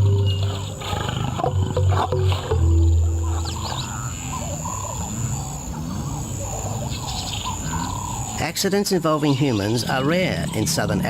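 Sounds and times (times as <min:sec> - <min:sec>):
lion growling: 0:00.0 - 0:08.5
birds chirping: 0:00.0 - 0:11.0.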